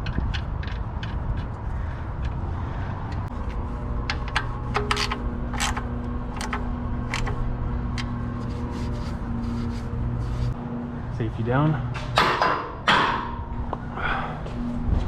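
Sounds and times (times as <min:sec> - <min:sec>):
sharp clicks and knocks: 0:00.0 - 0:02.4, 0:03.1 - 0:08.2
machine hum: 0:00.0 - 0:12.2.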